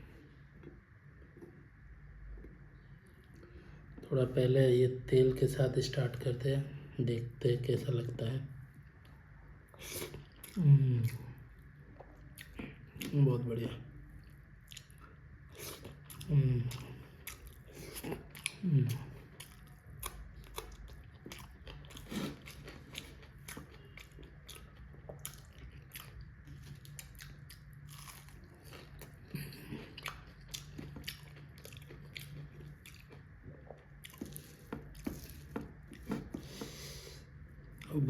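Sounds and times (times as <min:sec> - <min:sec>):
person chewing food: 0:08.8 - 0:13.2, 0:14.1 - 0:38.0.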